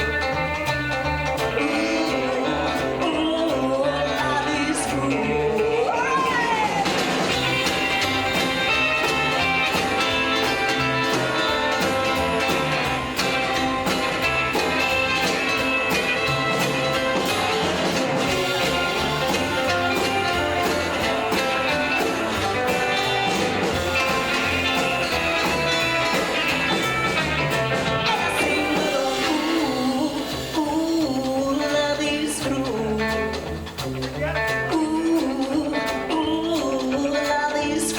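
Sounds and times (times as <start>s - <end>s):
rockabilly band playing: 0.0s - 37.9s
person singing: 1.0s - 13.4s, 27.7s - 33.6s, 34.4s - 37.9s.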